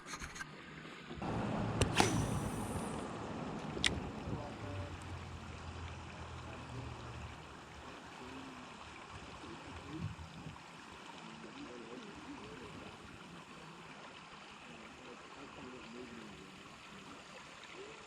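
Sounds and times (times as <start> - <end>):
river water rippling: 0.5 - 18.0
low hum: 1.2 - 7.9.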